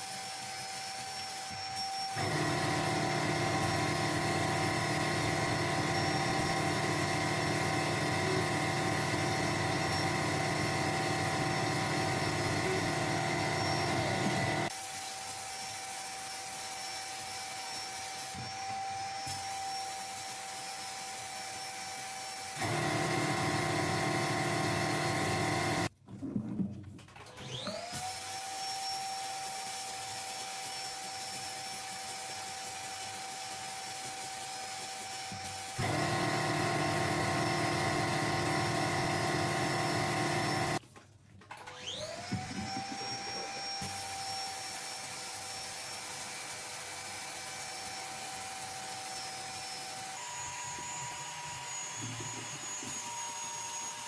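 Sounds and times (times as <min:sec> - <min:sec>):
power tool motor whining: 0:01.5 - 0:14.7, 0:22.5 - 0:25.9, 0:35.0 - 0:40.8, 0:41.7 - 0:45.7.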